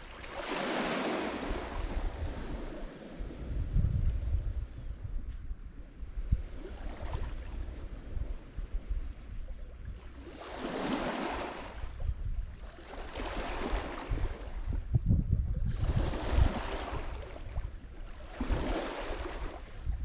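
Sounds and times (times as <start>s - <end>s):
waves washing onto shore: 0.0s - 3.6s, 10.0s - 12.0s, 12.6s - 14.6s, 15.7s - 19.9s
wind buffeting microphone: 0.0s - 20.0s.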